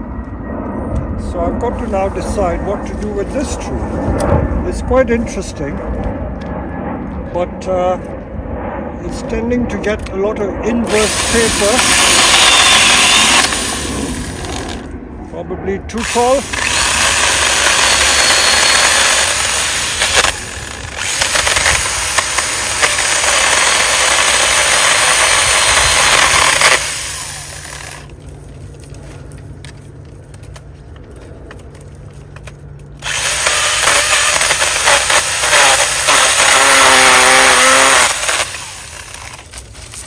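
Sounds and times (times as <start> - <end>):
pitched hum: 0.0 - 40.0
power saw cutting branches: 10.8 - 14.9, 15.9 - 28.2, 33.0 - 40.0.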